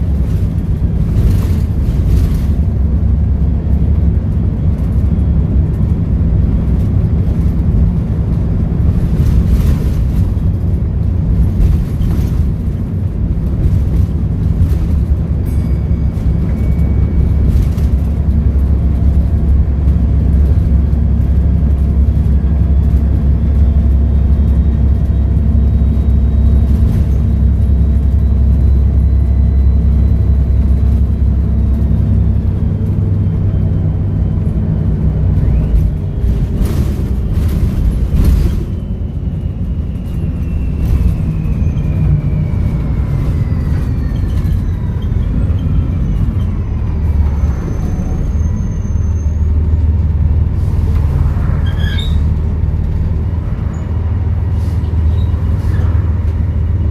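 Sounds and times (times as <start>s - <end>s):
diesel bus engine droning: 0.0s - 56.9s
high turbo whistle: 38.7s - 49.5s.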